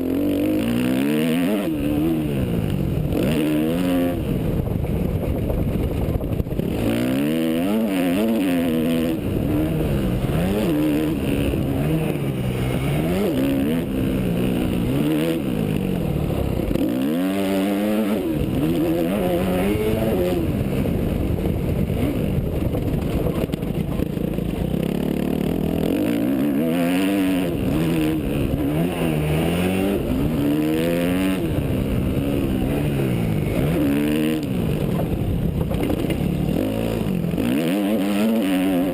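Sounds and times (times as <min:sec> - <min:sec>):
motocross engine revving: 0:00.0 - 0:04.6, 0:06.4 - 0:38.9.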